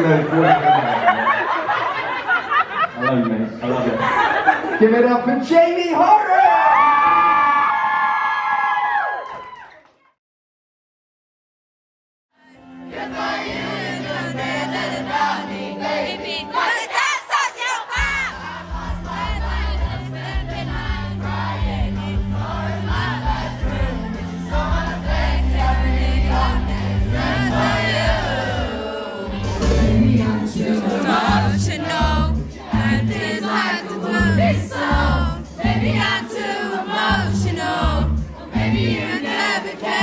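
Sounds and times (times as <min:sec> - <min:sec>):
crowd noise: 0:00.0 - 0:08.0, 0:12.9 - 0:40.0
crowd singing along: 0:12.4 - 0:40.0
heavy bass beat: 0:18.0 - 0:28.6, 0:29.4 - 0:30.5
person singing over loudspeakers: 0:26.1 - 0:40.0.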